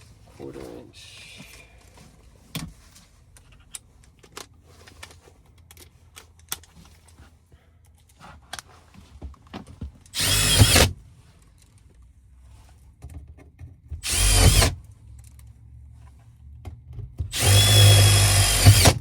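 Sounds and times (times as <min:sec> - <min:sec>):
power drill: 0:10.2 - 0:11.0, 0:14.0 - 0:14.8, 0:17.3 - 0:19.0.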